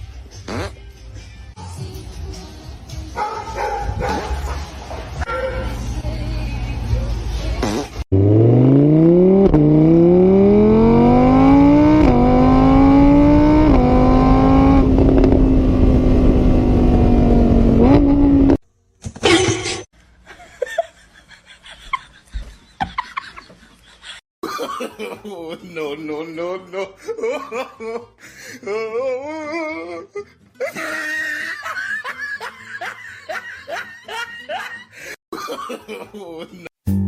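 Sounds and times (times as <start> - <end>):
car engine accelerating: 8.1 - 18.6.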